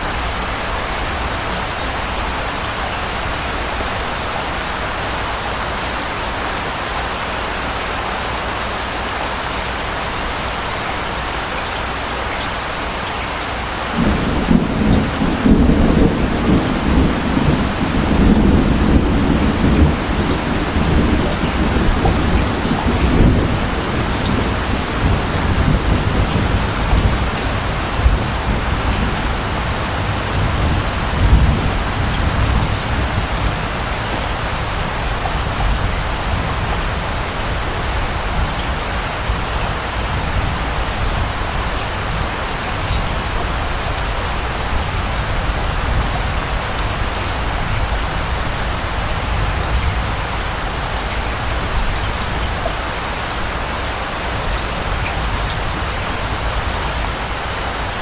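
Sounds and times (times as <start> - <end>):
rain falling: 0.0 - 58.0
distant thunder rumbling: 13.9 - 53.4.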